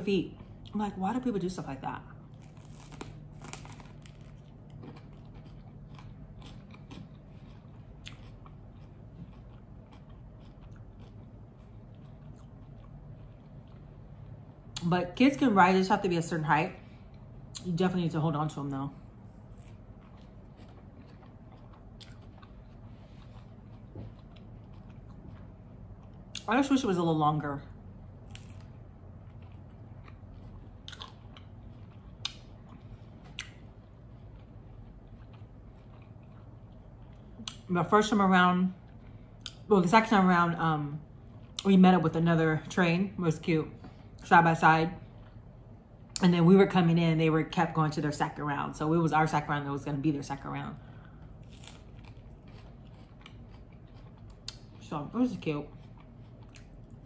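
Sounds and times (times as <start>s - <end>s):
person chewing bread with crunches: 2.0s - 14.9s, 18.6s - 26.5s, 27.7s - 37.7s, 38.7s - 39.7s, 41.0s - 41.7s, 45.0s - 46.2s, 50.7s - 57.0s.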